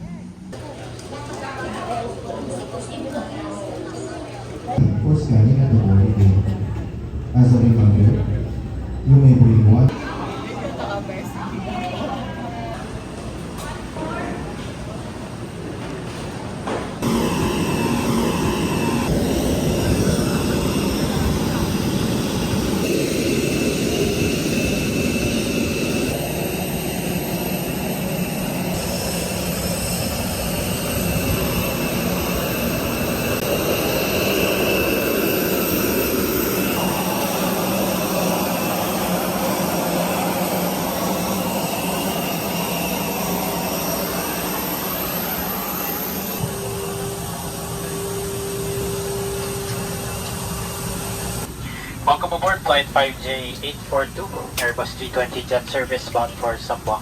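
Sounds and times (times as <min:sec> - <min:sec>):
jet aircraft noise: 0:12.8 - 0:57.0.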